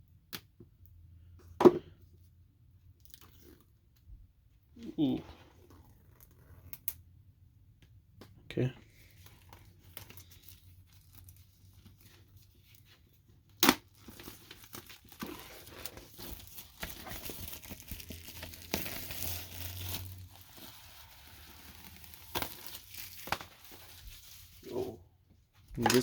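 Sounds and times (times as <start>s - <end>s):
plastic rustling: 9.0s - 24.9s
plastic wrapping tearing and crinkling: 9.1s - 24.7s.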